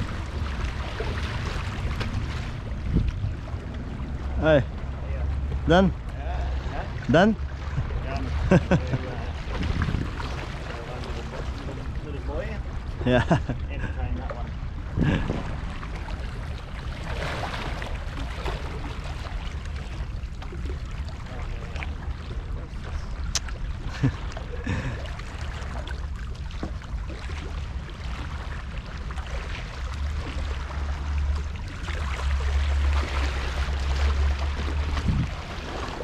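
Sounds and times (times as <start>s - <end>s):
wind buffeting microphone: 0.0s - 6.0s, 6.8s - 16.5s, 34.7s - 36.0s
sea water washing against rocks: 6.2s - 12.6s, 27.2s - 36.0s.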